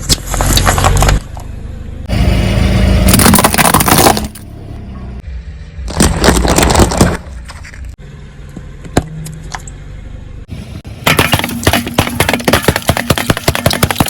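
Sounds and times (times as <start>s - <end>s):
objects crunching under car wheel: 0.0s - 1.5s, 3.1s - 4.4s, 5.8s - 8.0s, 11.0s - 14.0s.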